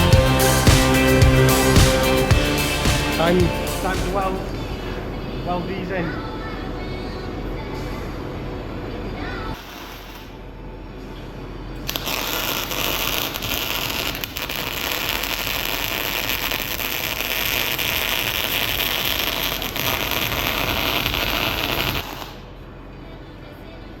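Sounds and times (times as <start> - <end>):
arc welding sizzling crackle: 9.5 - 10.4, 11.8 - 22.5.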